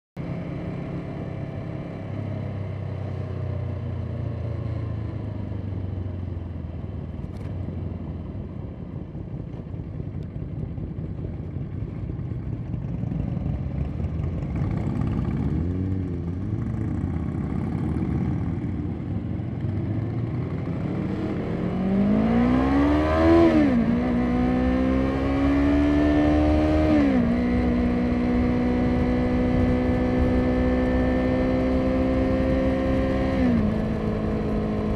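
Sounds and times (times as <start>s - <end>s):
motorcycle engine revving: 12.6s - 34.9s.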